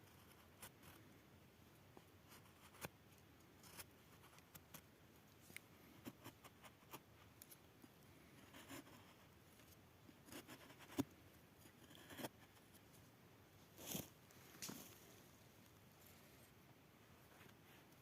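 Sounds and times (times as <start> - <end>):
rustles: 12.9 - 16.6.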